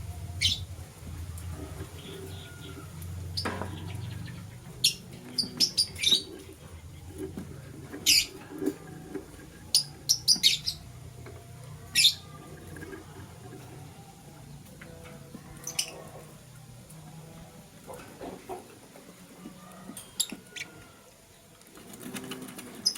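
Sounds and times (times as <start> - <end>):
lovebirds chirping: 0.1 - 0.7, 1.7 - 8.6, 9.2 - 16.4.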